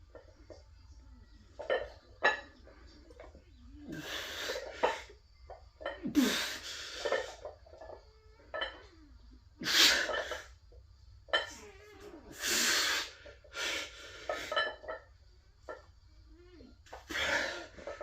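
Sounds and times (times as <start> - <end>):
man breathing hard: 12.4 - 14.5.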